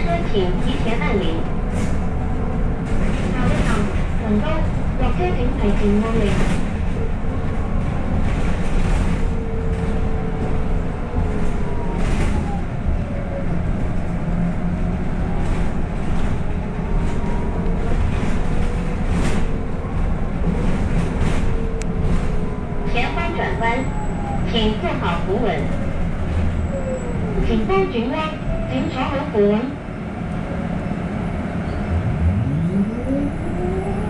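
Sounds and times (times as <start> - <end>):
bus drivetrain rumble: 0.0 - 34.0
rising and falling whine: 31.9 - 34.0.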